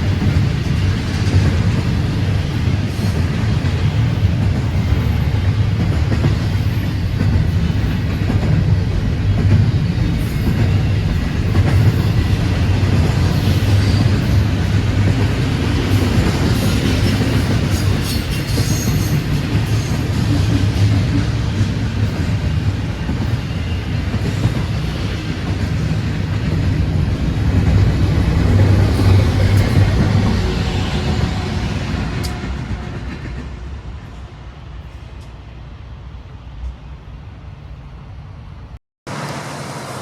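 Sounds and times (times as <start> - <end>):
freight train rumbling past: 0.0 - 40.0.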